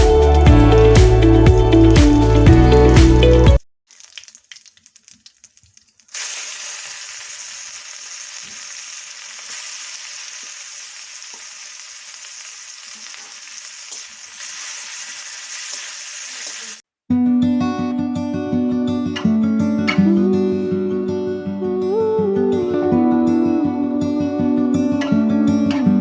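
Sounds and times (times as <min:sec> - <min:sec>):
faint drips and ticks: 0:03.9 - 0:06.2
food sizzling in hot oil: 0:03.9 - 0:16.8.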